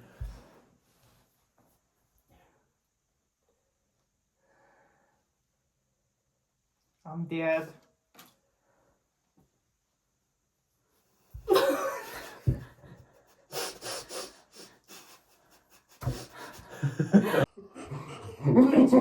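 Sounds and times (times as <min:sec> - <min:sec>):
stifled breathy laughter: 0:11.5 - 0:19.0.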